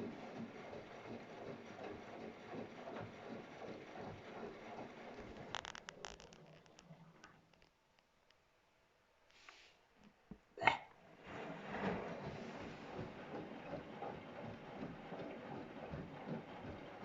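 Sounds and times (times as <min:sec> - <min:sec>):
laundry sloshing in drum: 0:00.0 - 0:05.5, 0:11.0 - 0:17.0
washing machine running: 0:00.0 - 0:07.2, 0:11.0 - 0:17.0.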